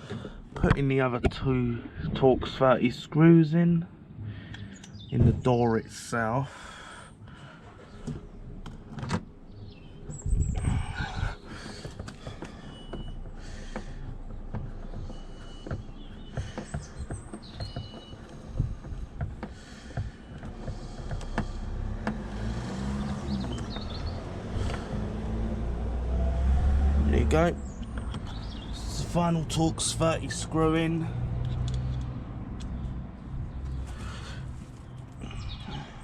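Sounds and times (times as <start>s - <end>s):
low vehicle rumble: 0.0s - 36.0s
clicks and knocks on car door trim: 11.7s - 22.3s.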